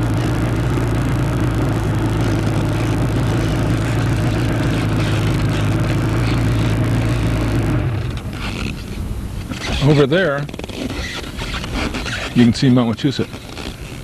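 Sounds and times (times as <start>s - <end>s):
motorcycle engine running: 0.0s - 14.0s
wind rushing over microphone: 0.0s - 14.0s.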